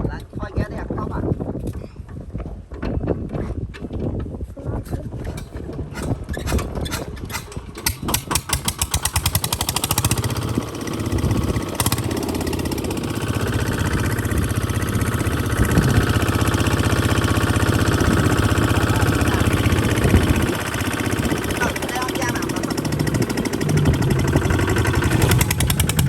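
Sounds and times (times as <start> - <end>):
diesel engine chugging: 7.3 - 26.0.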